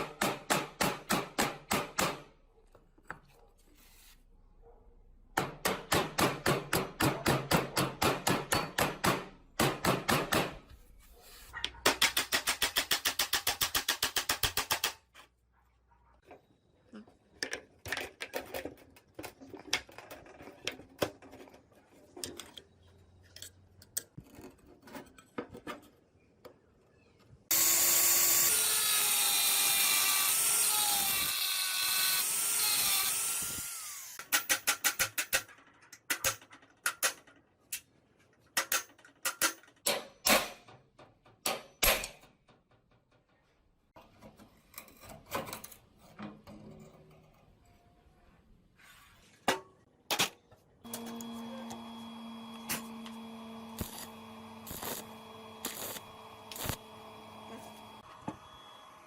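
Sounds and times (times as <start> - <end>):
power tool running: 27.5 - 34.2, 50.9 - 59.0
light scrapes: 48.7 - 49.5.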